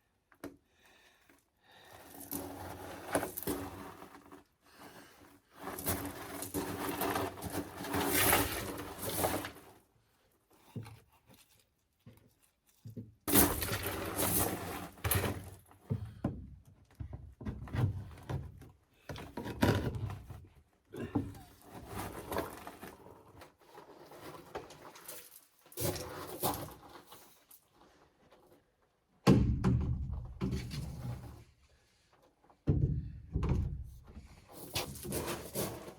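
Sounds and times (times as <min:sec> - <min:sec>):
plastic pipe knocking and scraping: 0:15.0 - 0:23.4, 0:29.3 - 0:31.5, 0:32.5 - 0:35.9.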